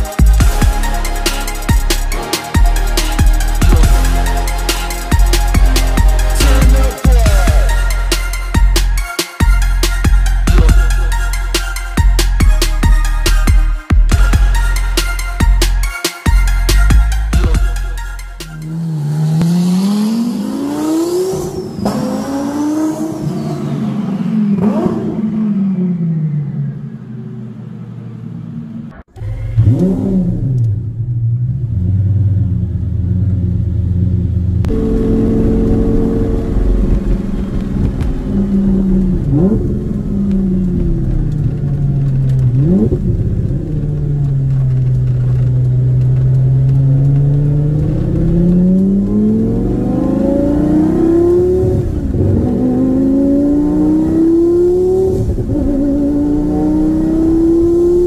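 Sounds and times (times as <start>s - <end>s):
sports car engine revving: 18.5s - 58.0s.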